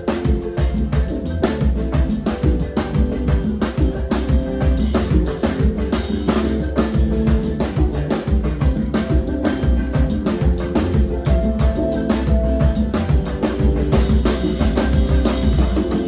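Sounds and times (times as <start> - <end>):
drum kit kick and snare: 0.0 - 16.0
live band playing: 0.0 - 16.0.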